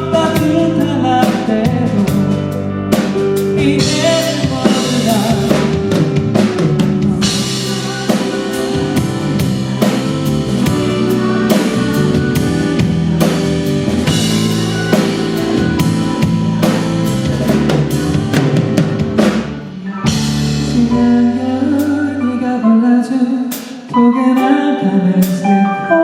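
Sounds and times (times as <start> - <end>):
drum kit beating: 0.0 - 22.2, 23.4 - 25.7
bass: 0.0 - 26.0
keyboard chords: 0.0 - 26.0.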